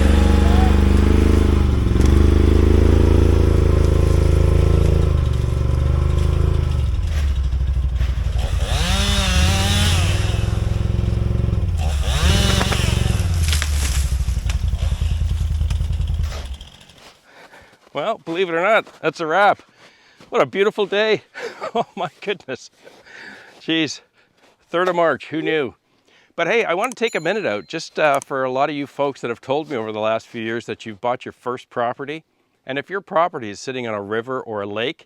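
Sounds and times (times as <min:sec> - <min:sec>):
chainsaw revving: 0:00.0 - 0:17.2.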